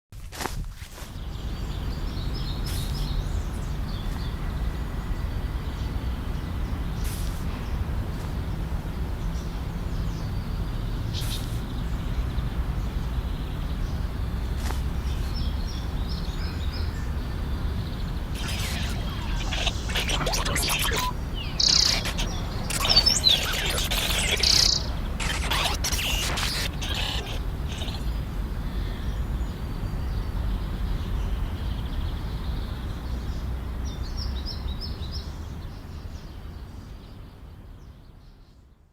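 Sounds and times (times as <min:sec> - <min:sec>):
birds chirping: 0:17.8 - 0:28.4.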